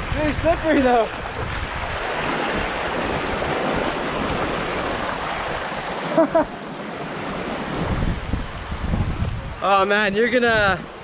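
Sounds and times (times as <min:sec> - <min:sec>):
river water rushing over rocks: 0:00.0 - 0:08.8.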